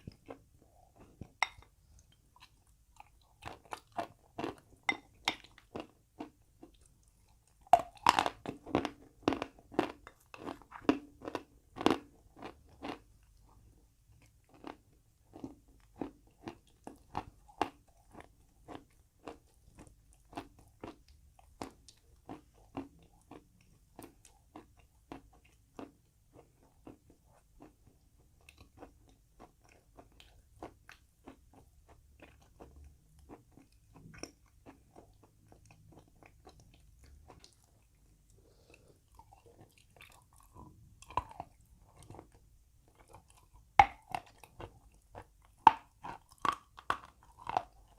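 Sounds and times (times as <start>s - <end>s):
person chewing crunchy chalk: 0.0s - 13.1s, 28.4s - 47.9s.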